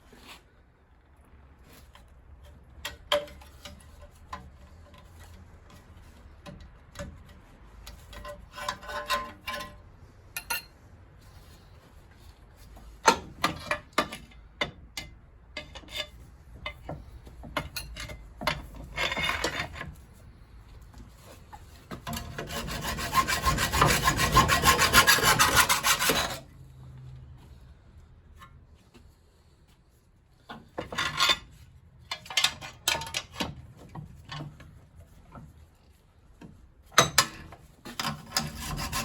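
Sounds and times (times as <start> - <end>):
metal scraping rasp: 7.8 - 9.8, 17.8 - 20.0, 21.4 - 26.5, 37.1 - 39.0.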